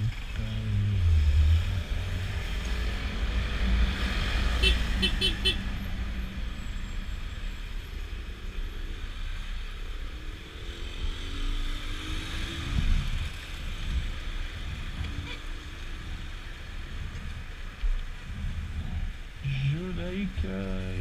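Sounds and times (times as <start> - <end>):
road noise: 0.0 - 21.0
wind rush on microphone: 11.2 - 19.4.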